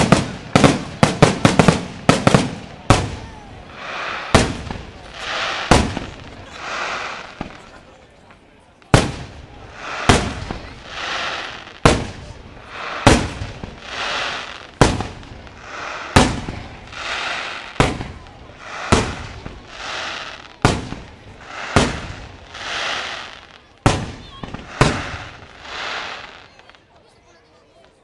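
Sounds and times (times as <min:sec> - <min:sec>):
firework hiss: 0:00.0 - 0:07.9, 0:08.8 - 0:26.7
firework shells bursting: 0:08.8 - 0:26.7.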